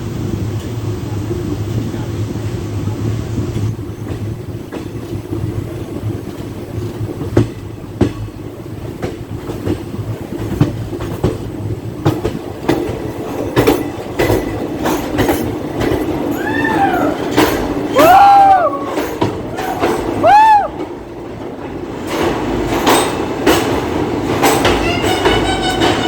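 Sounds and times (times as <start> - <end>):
train rumble: 0.0 - 26.0
wheels clicking over rail joints: 0.1 - 26.0.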